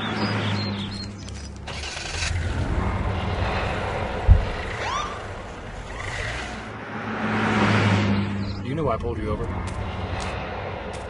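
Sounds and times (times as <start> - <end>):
traffic noise: 0.0 - 11.0
sharp low thump: 4.2 - 4.7.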